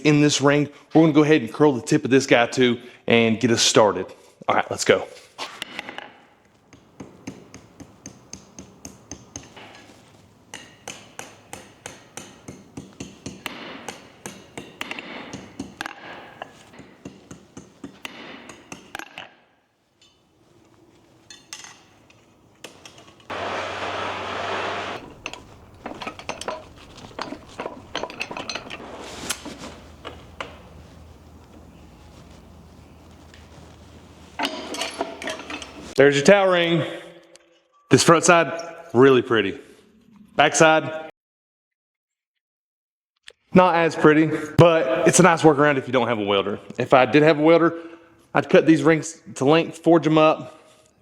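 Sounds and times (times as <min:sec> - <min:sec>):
hammer striking steel bar: 0:10.5 - 0:19.2
burst of steady noise: 0:23.3 - 0:25.4.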